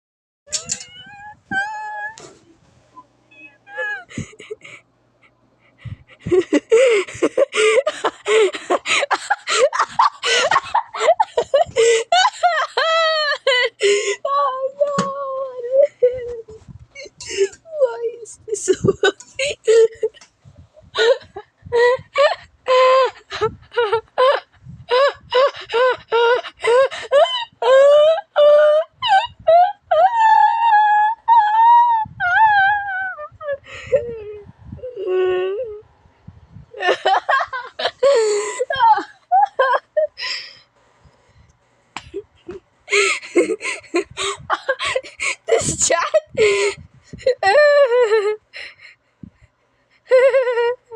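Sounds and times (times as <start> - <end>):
person giggling: 3.7 - 14.2, 18.5 - 20.2, 36.8 - 40.2, 42.0 - 48.4.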